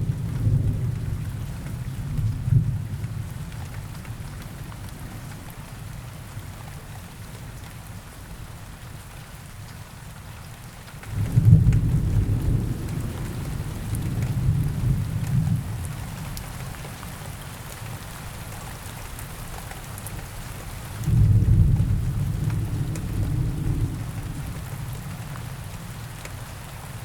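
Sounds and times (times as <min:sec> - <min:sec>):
rain on foliage: 0:00.0 - 0:27.0
thunder rumbling: 0:11.1 - 0:16.3, 0:21.0 - 0:25.4.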